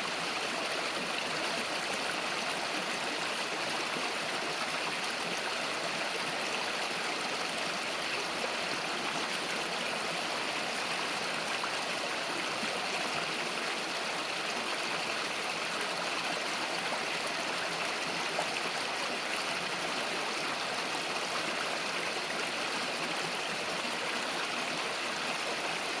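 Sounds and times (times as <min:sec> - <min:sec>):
river flowing over stones: 0:00.0 - 0:26.0.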